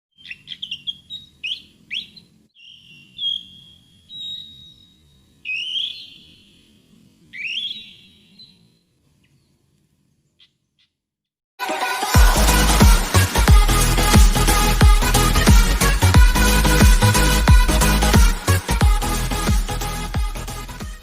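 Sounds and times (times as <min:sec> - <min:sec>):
bird squeaky whistled calls: 0:00.2 - 0:06.7, 0:07.4 - 0:08.6.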